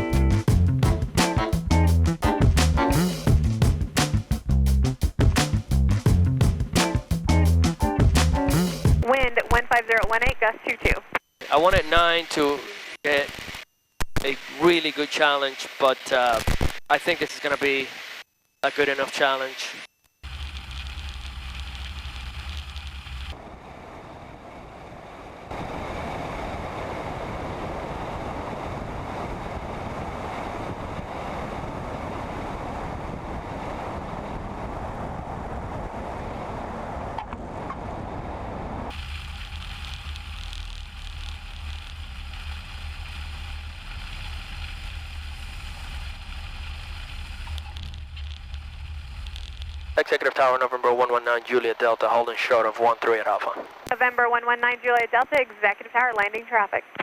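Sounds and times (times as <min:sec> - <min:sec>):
airplane engine and propeller drone: 0:00.0 - 0:04.1, 0:20.3 - 0:54.6
loud wind noise: 0:23.3 - 0:39.1.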